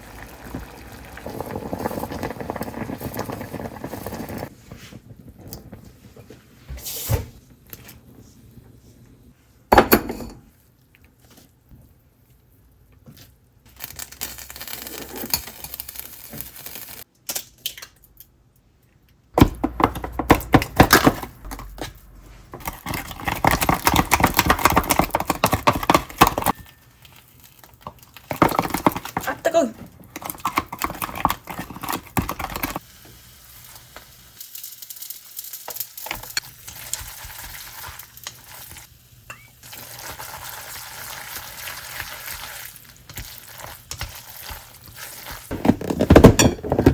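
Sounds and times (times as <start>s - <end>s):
food sizzling: 0.0s - 5.8s, 13.9s - 17.1s, 30.4s - 46.2s.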